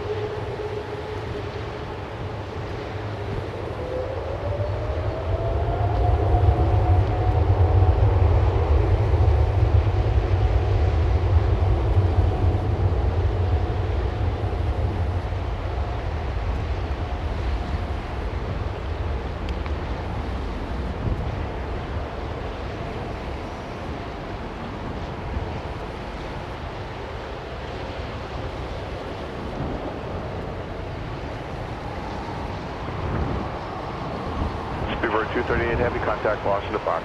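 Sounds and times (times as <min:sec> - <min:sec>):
jet engines rumbling: 0:00.0 - 0:37.0.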